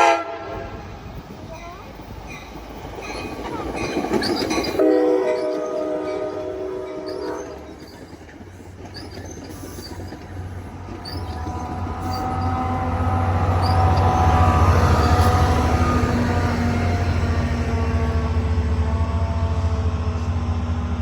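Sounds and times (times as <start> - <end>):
train horn blast: 0.0 - 0.9, 4.8 - 7.8
train rumble: 0.0 - 21.0.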